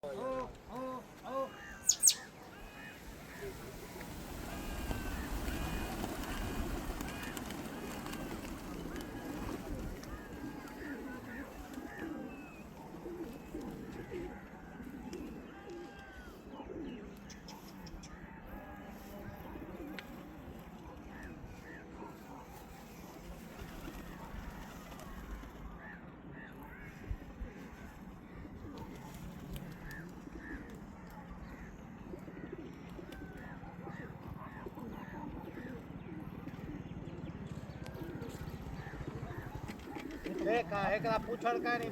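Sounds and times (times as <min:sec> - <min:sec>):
pigeons cooing: 0:00.0 - 0:41.9
short bird chirps: 0:01.8 - 0:02.3
thin higher calls: 0:01.8 - 0:02.4.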